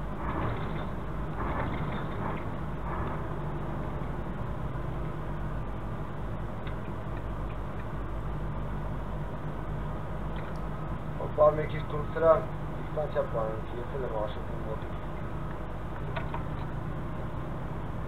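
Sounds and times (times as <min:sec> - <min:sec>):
vehicle engine and road noise: 0:00.0 - 0:18.0.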